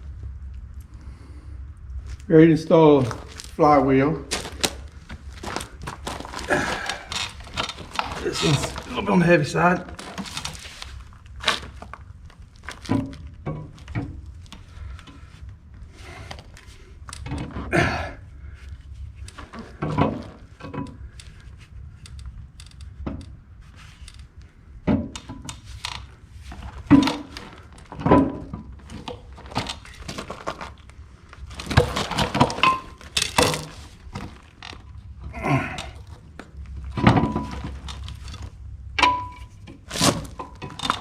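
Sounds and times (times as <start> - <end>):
metal clanks and scraping: 4.3 - 11.9, 31.5 - 34.9, 36.9 - 41.0.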